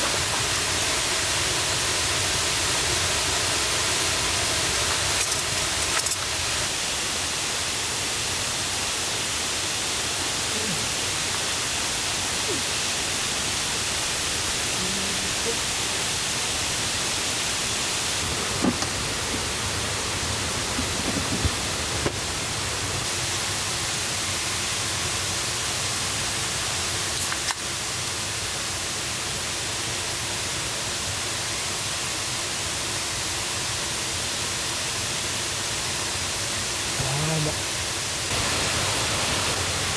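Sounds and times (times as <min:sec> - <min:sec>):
waterfall and river rushing: 0:37.8 - 0:39.9.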